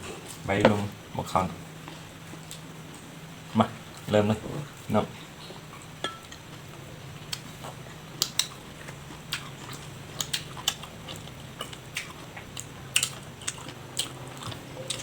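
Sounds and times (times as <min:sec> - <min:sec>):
faint low hum: 0:00.0 - 0:15.0
person chewing food: 0:05.7 - 0:15.0.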